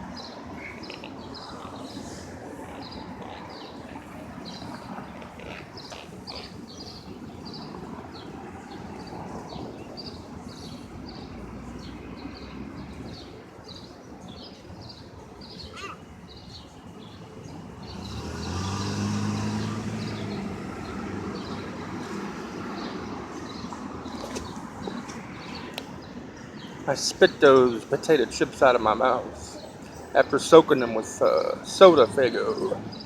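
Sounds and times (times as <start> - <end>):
city street traffic: 0.0 - 33.0
vehicle engine humming past: 17.4 - 25.9.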